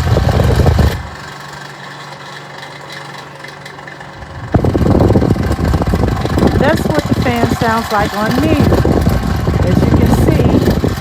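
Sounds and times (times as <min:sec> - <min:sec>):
electric fan motor hum: 0:00.0 - 0:11.0
fan click: 0:00.0 - 0:11.0
loud low rumble: 0:04.2 - 0:11.0.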